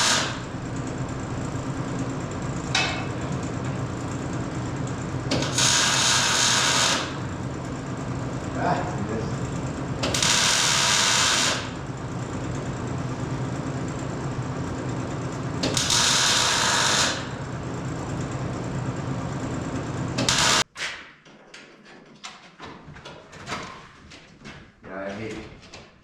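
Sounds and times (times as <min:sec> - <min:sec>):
power tool motor running: 0:00.0 - 0:00.6, 0:05.3 - 0:07.4, 0:09.6 - 0:11.8, 0:15.6 - 0:17.4, 0:20.0 - 0:20.6.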